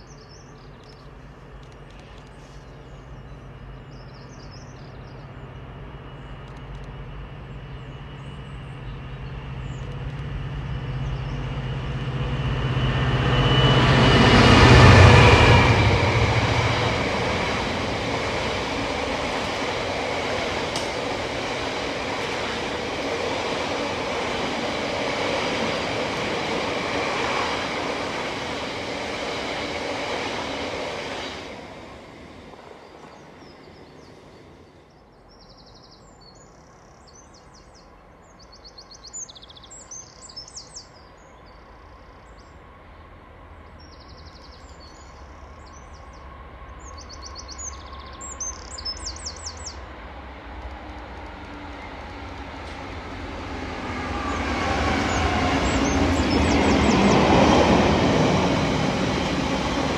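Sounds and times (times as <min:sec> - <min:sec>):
diesel locomotive engine passing: 0:00.0 - 0:59.9
small birds chirping and trilling: 0:43.8 - 0:49.8
freight wagons rumbling past: 0:51.8 - 0:59.9.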